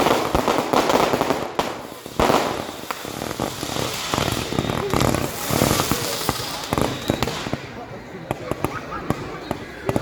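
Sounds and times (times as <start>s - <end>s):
firework bang: 0.0s - 7.6s
fireworks crackling: 0.0s - 10.0s.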